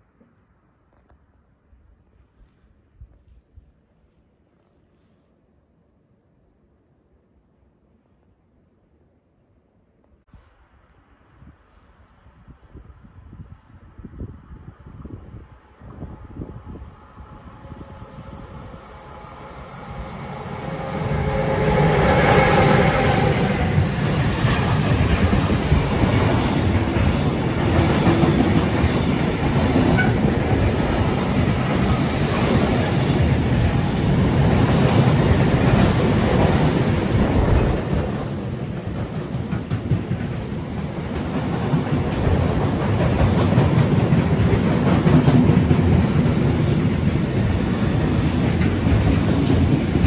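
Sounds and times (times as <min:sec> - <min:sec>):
freight train wagons rumbling on rails: 0:13.3 - 0:50.0
locomotive whine: 0:15.6 - 0:25.9.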